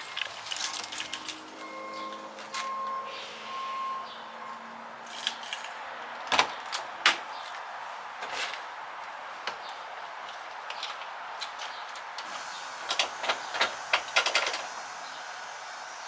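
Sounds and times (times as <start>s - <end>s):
keys jangling: 0.0s - 1.7s, 5.1s - 5.8s.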